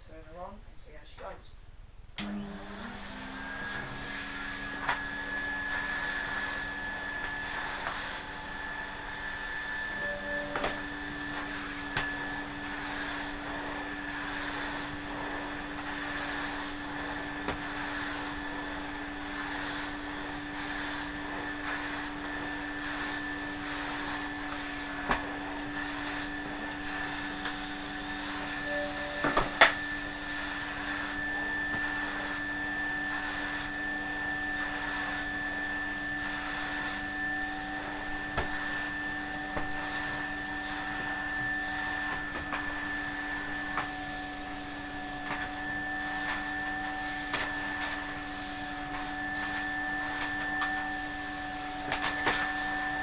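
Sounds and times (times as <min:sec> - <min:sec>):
vacuum cleaner motor whine: 0:02.2 - 0:53.0
vacuum floor tool knocking: 0:23.0 - 0:29.9, 0:31.4 - 0:32.0, 0:38.2 - 0:38.8, 0:40.9 - 0:42.9.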